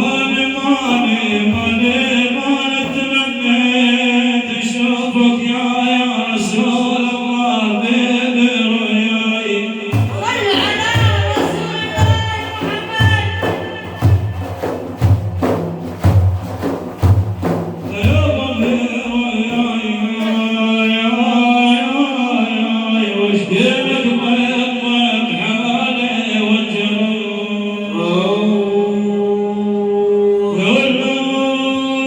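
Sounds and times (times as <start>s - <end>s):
drums beating low: 0.0s - 4.8s, 9.9s - 20.5s
men chanting religious song: 0.0s - 14.8s, 17.8s - 32.0s.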